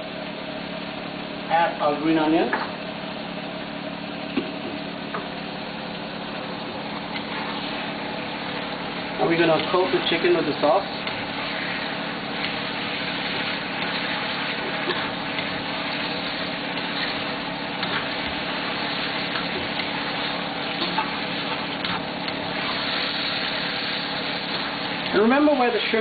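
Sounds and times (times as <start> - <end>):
steady mechanical hum: 0.0 - 26.0
food sizzling in a wok: 7.1 - 26.0.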